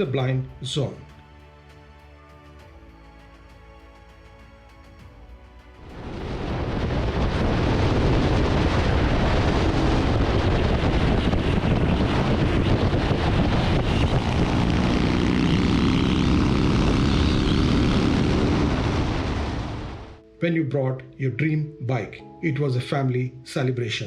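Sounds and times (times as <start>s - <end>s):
motorcycle engine drone: 5.8s - 20.2s
wind rush: 5.8s - 20.2s.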